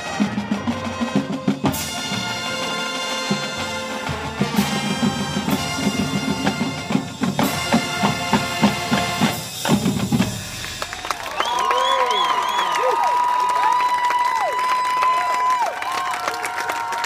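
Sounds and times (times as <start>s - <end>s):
held brass chords: 0.0s - 9.8s
marching band drums: 0.0s - 11.4s.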